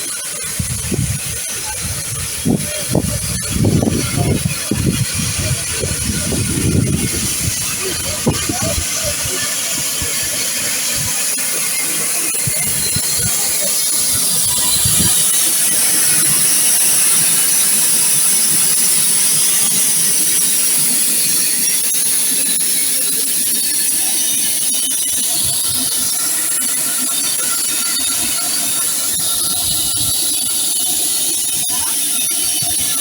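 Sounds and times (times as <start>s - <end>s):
loud hiss of steam: 0.0s - 33.0s
low rumbles: 0.6s - 10.4s.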